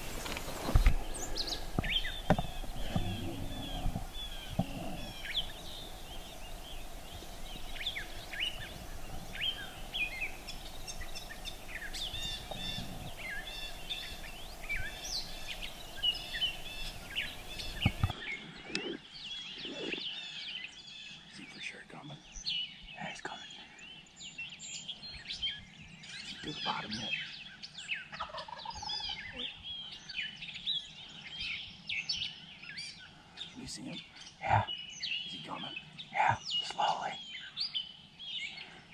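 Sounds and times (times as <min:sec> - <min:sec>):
sharp low thumps: 0:00.0 - 0:18.1
songbirds chirping and trilling: 0:00.0 - 0:38.9.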